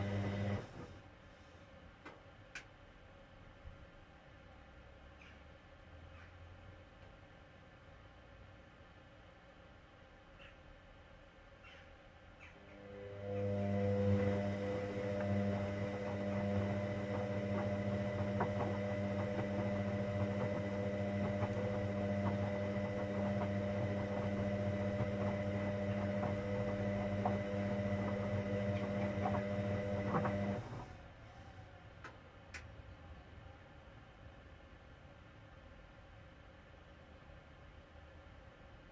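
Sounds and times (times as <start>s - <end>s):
washing machine electrical hum: 0.0s - 1.2s, 12.4s - 32.7s.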